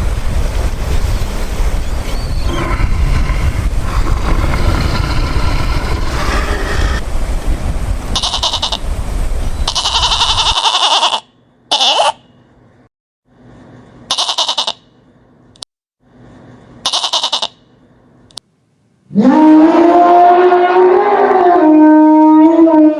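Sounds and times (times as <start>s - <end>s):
wind rumble on microphone: 0.0s - 10.6s
animal bleating: 8.2s - 8.8s, 9.7s - 12.2s, 14.1s - 14.9s, 16.8s - 17.6s.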